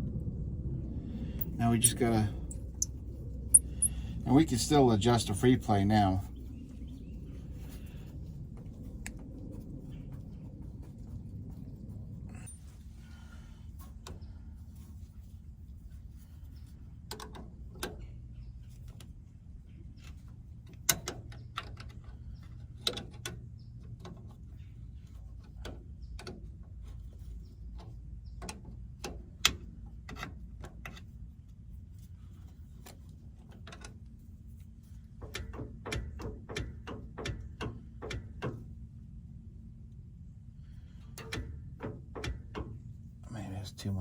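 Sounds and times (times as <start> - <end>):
low steady hum: 0.0 - 17.0
wrench clicking on metal: 3.5 - 4.0.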